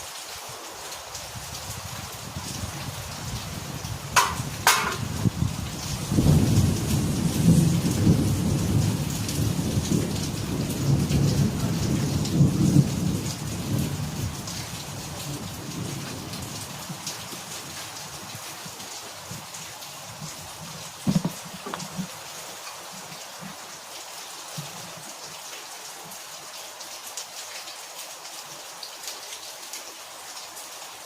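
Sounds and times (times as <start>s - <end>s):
steady rain: 0.0s - 31.0s
thunder cracks and rumble: 3.8s - 17.0s.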